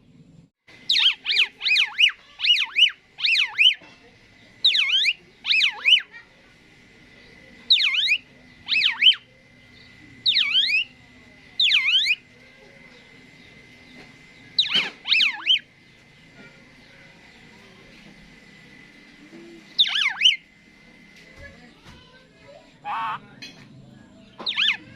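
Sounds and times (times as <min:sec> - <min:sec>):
starling whistled calls: 0:00.7 - 0:06.3, 0:07.0 - 0:17.7, 0:19.0 - 0:20.6, 0:22.8 - 0:23.4, 0:24.2 - 0:24.9.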